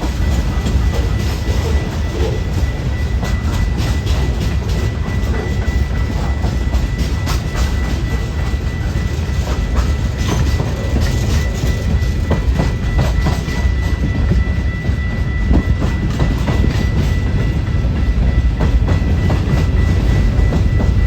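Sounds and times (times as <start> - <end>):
wheels clacking over rail joints: 0.0 - 14.9
train rumbling past: 0.0 - 21.0.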